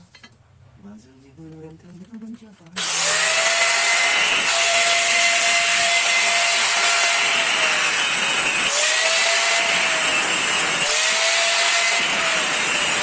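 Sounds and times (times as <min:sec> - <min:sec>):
angle grinder cutting metal: 0:02.8 - 0:13.0.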